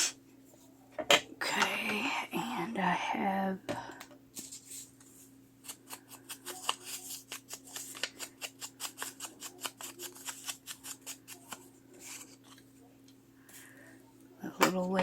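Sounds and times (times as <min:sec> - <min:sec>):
scissors cutting paper: 0:05.6 - 0:12.6.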